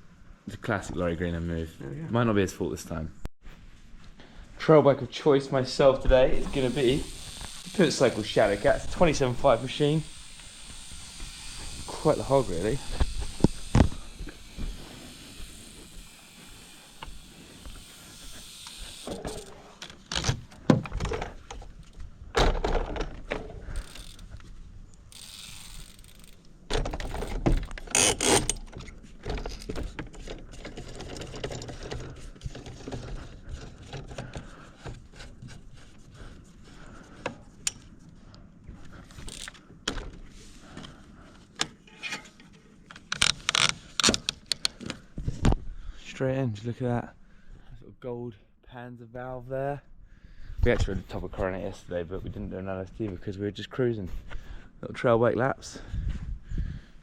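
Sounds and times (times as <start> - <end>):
bike parts clicking and rattling: 6.4 - 45.6.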